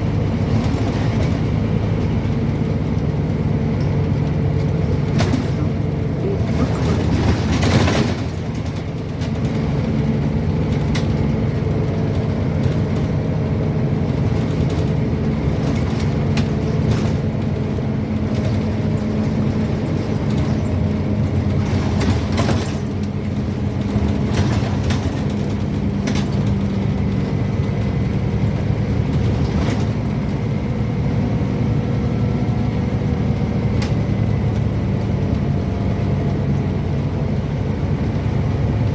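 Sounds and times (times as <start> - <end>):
bus diesel engine running: 0.0 - 38.9
knocks and rattles: 3.7 - 10.0, 14.2 - 17.6, 18.2 - 26.9.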